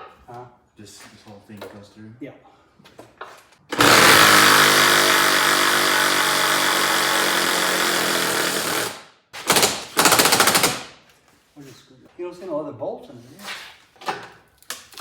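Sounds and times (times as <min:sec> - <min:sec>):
impact wrench: 0:03.7 - 0:10.9.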